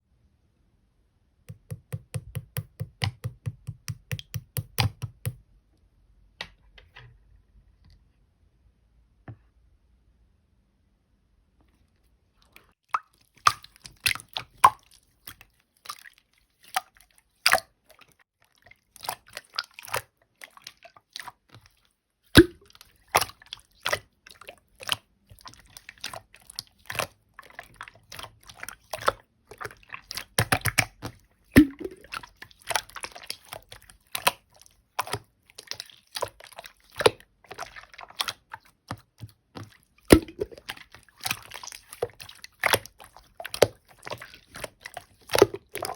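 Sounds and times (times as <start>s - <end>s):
slime squelching and clicking: 1.5s - 5.4s, 22.4s - 45.9s.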